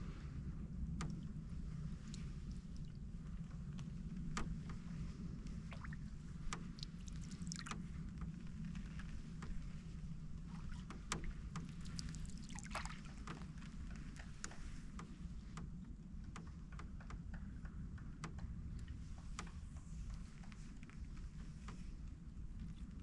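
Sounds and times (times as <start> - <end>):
steady low rumble: 0.0 - 23.0
paddle dipping and dripping in water: 0.9 - 15.7
light clicks and knocks: 1.0 - 23.0.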